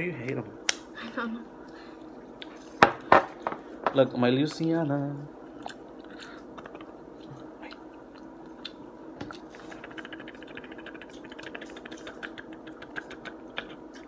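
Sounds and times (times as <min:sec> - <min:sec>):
chewing clicks and smacks: 0:05.6 - 0:14.0.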